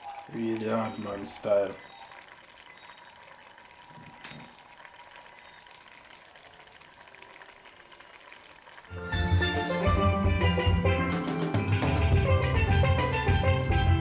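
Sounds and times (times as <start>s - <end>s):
fish sizzling and simmering: 0.0s - 11.9s
steelpan music with drums: 8.9s - 14.0s.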